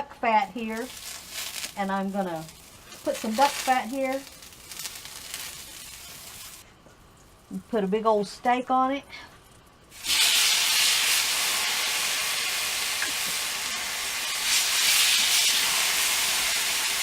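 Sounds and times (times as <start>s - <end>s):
steak sizzling on a griddle: 2.4s - 6.6s, 10.0s - 17.0s.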